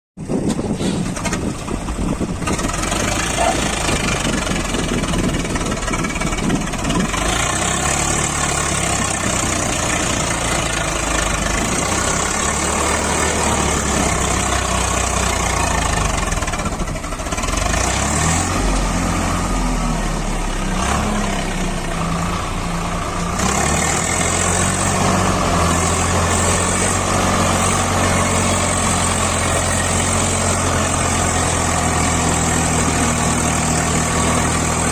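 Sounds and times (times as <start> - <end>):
tractor diesel engine running: 0.2 - 34.9.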